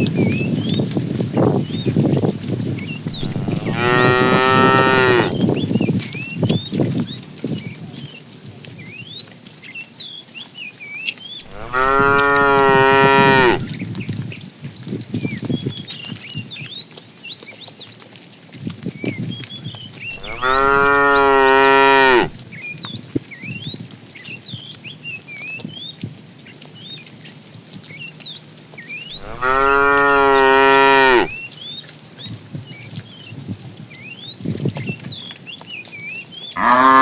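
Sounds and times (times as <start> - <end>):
birds chirping: 2.5 - 5.9, 11.4 - 13.8, 20.0 - 22.4, 28.9 - 31.7, 36.3 - 37.0
cow mooing: 3.1 - 5.4, 11.4 - 13.7, 20.2 - 22.4, 29.1 - 31.4, 36.6 - 37.0.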